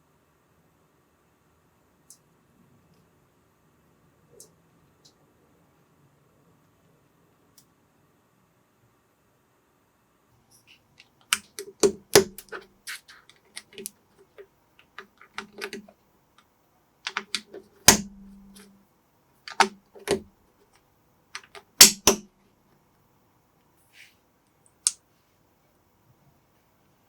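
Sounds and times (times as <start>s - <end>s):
plastic bricks clicking: 11.0s - 15.9s, 17.1s - 18.7s, 19.5s - 20.2s, 21.4s - 22.2s
plastic bricks snapping: 11.3s - 12.6s, 17.1s - 18.7s, 19.5s - 20.2s, 21.4s - 22.3s.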